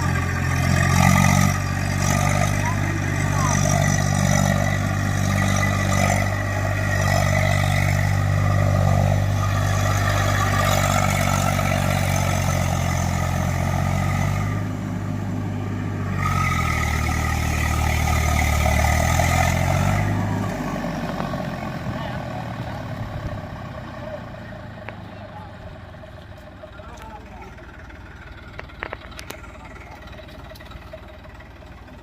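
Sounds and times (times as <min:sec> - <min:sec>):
tractor diesel engines straining: 0:00.0 - 0:32.0.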